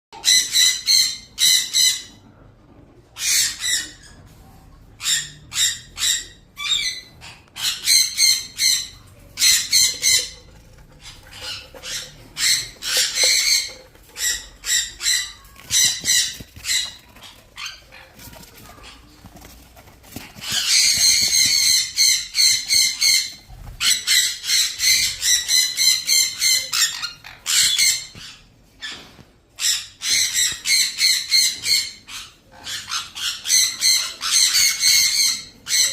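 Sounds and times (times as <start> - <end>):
parakeet chicks calling: 4.9 - 18.1, 20.2 - 29.0, 29.6 - 35.9.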